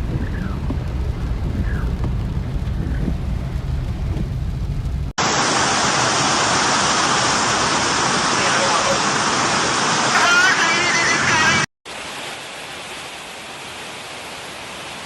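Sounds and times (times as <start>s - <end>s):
low rumble: 0.0s - 5.2s
heavy rain hissing: 0.0s - 15.0s.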